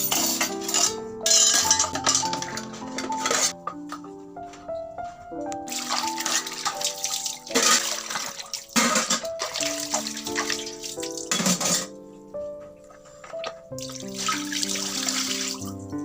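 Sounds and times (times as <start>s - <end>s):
music of held melodic notes: 0.0s - 16.0s
water running from tap into sink: 5.7s - 11.8s, 13.8s - 15.7s.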